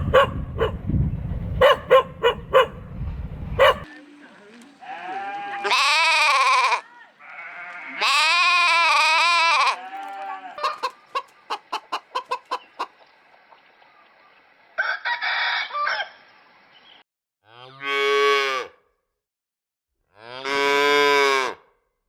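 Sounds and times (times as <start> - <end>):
chicken squawk: 8.0 - 13.0
chicken clucking: 10.2 - 13.0
rooster crowing: 14.8 - 16.2.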